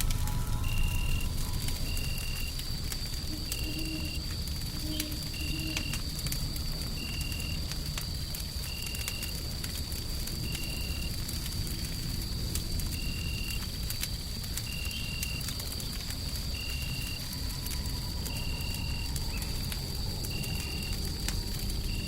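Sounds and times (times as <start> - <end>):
steady high whine: 0.0 - 6.0
low rumbling noise: 0.0 - 8.6, 15.4 - 22.0
wood fire crackling and popping: 0.0 - 22.0.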